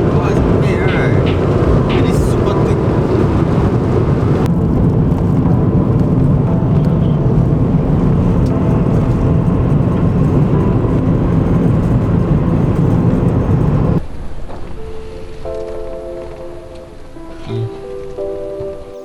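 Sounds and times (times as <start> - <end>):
road and engine rumble in car: 0.0 - 14.0.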